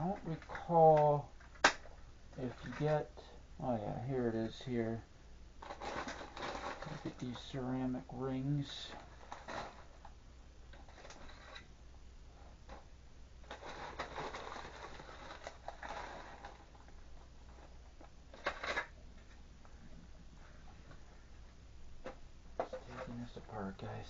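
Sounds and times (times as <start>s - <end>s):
plastic parts rustling and clattering: 0.0s - 3.2s, 5.6s - 7.6s, 8.6s - 11.7s, 12.6s - 19.4s, 22.0s - 24.0s.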